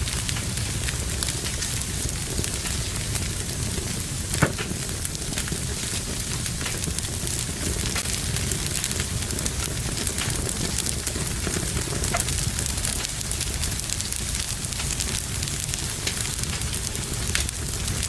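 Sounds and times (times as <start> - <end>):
fire crackling in a fireplace: 0.0 - 18.0
loud fire pop: 2.6 - 13.3.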